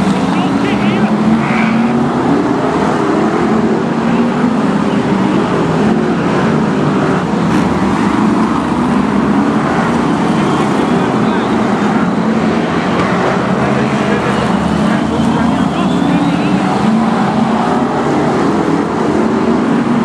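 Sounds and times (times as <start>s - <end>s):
racing car engines: 0.0s - 20.0s.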